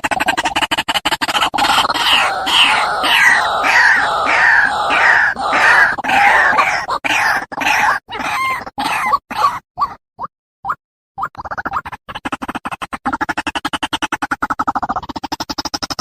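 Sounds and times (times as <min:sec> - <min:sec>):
bird harsh croaking calls: 0:01.3 - 0:09.6.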